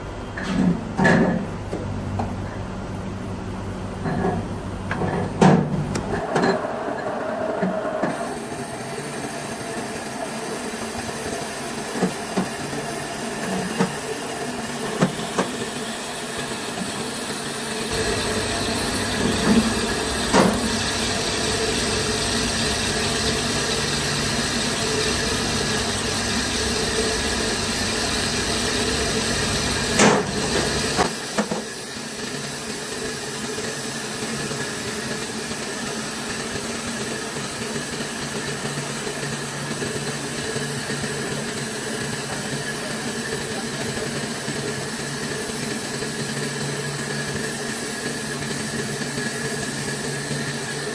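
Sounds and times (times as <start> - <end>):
machinery rushing noise: 6.1 - 31.2.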